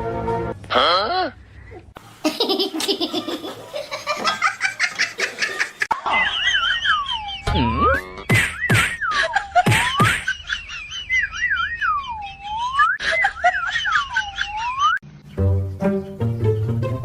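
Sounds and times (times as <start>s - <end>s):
high warbling whistle tone: 11.4s - 13.0s, 14.1s - 15.0s
musical notes: 15.2s - 17.0s.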